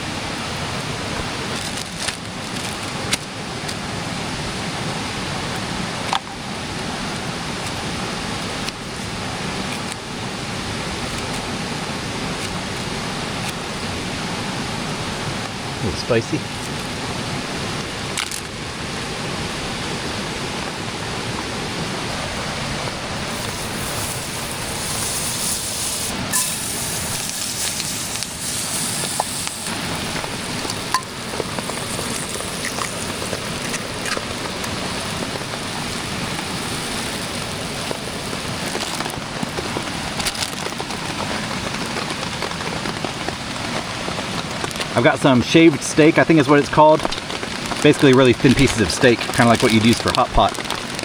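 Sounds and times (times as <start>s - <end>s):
light rain: 0.0s - 51.0s
mountain creek rushing: 0.0s - 51.0s
sharp ticks and pops: 28.9s - 34.8s.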